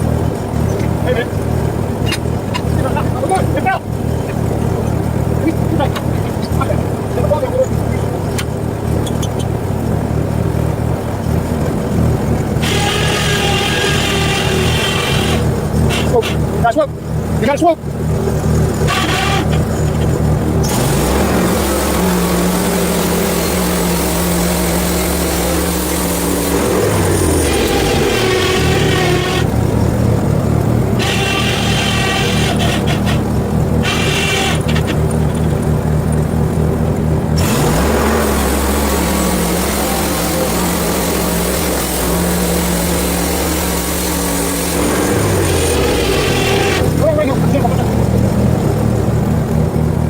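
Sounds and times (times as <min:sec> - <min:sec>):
sawmill engine droning: 0:00.0 - 0:50.0
band blade cutting log: 0:12.6 - 0:16.5, 0:18.8 - 0:30.0, 0:30.8 - 0:35.1, 0:37.4 - 0:47.0.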